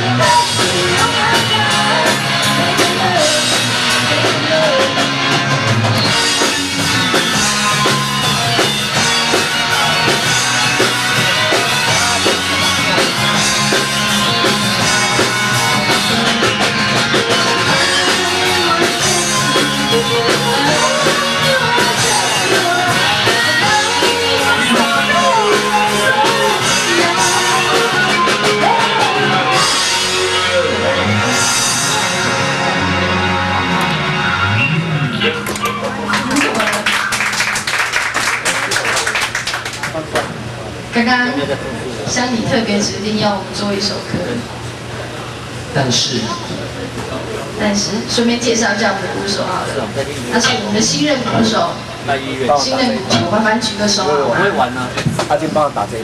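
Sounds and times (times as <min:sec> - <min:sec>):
person singing: 0:00.0 - 0:05.4, 0:09.7 - 0:32.9
drum kit: 0:00.0 - 0:40.4
rock band playing: 0:00.0 - 0:41.1.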